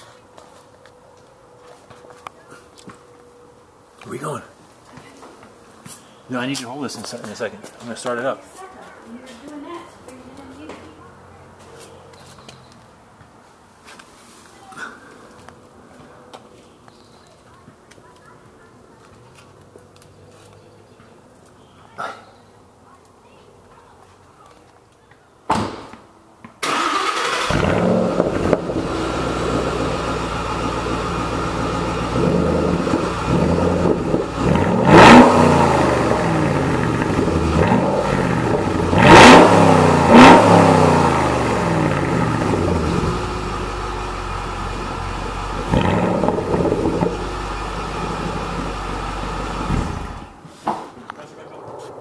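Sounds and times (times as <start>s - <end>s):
car engine starting and idling: 26.6s - 50.4s
car engine revving: 26.7s - 50.4s.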